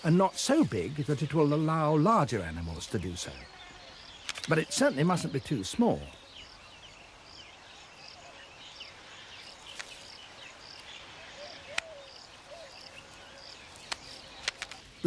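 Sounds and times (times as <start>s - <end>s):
birds chirping: 0.0s - 15.0s
insect chirping: 0.0s - 15.0s
sharp clicks: 4.2s - 4.7s, 11.7s - 12.0s, 13.8s - 14.9s.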